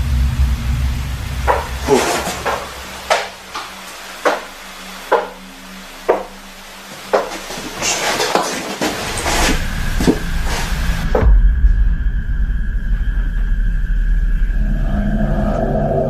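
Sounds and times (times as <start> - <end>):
footstep-like knocks: 1.5 - 10.6.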